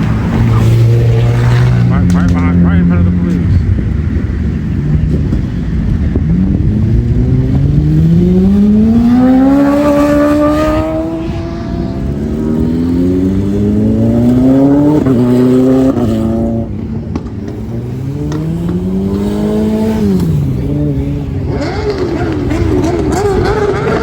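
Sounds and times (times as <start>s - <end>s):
engine accelerating through gears: 5.1s - 24.0s.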